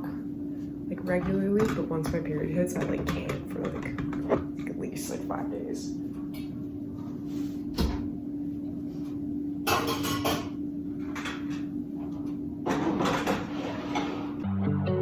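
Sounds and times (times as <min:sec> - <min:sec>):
steady low hum: 0:00.0 - 0:15.0
dishes clattering: 0:09.6 - 0:11.7
dishwasher rack sliding and scraping: 0:12.7 - 0:14.4.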